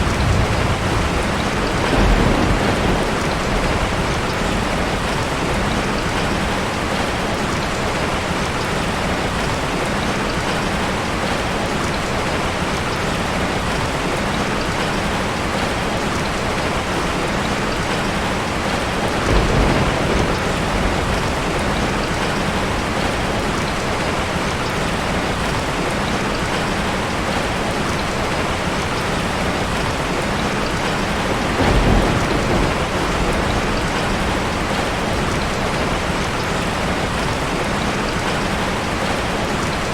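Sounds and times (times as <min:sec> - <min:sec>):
thunder rumbles: 0:00.0 - 0:08.2, 0:16.7 - 0:26.6, 0:27.4 - 0:39.3
heavy rain: 0:00.0 - 0:39.9.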